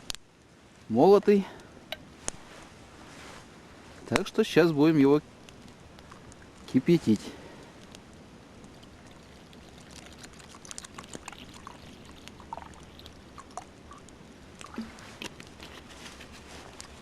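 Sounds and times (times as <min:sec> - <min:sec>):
water pouring into pot: 0:08.9 - 0:14.0.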